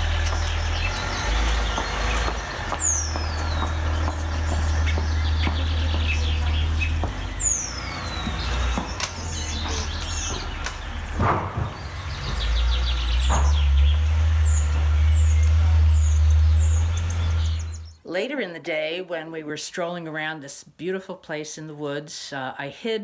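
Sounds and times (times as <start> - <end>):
descending bird whistle: 0.0 - 18.0
high down-slurred bird notes: 0.0 - 18.1
songbirds singing and calling: 0.0 - 22.8.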